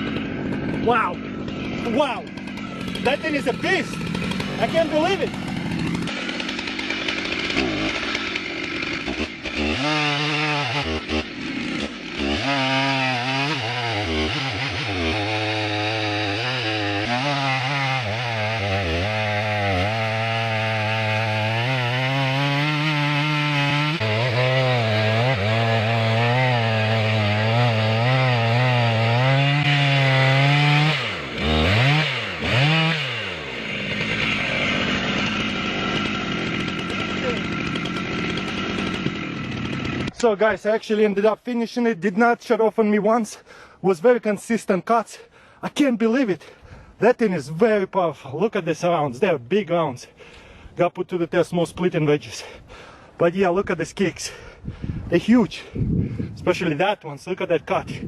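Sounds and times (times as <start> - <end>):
chainsaw cutting log: 0.0 - 41.2.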